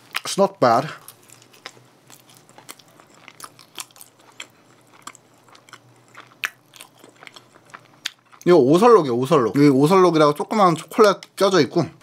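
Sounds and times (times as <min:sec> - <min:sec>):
person chewing soft food: 0:00.0 - 0:09.4.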